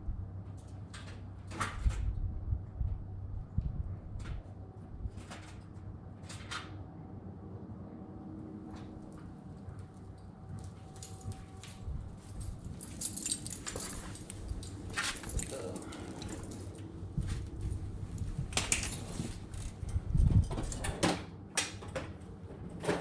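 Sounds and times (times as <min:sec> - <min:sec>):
hand tools clinking: 0:12.3 - 0:16.9
tools clattering: 0:12.4 - 0:16.8.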